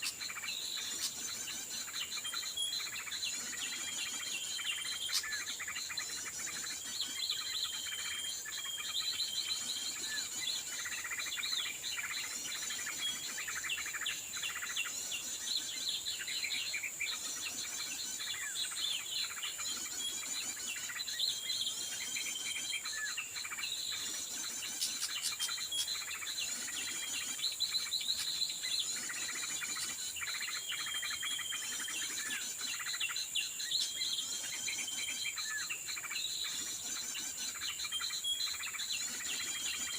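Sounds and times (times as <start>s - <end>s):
high-pitched insect drone: 0.0s - 39.9s
small birds chirping: 0.0s - 39.9s.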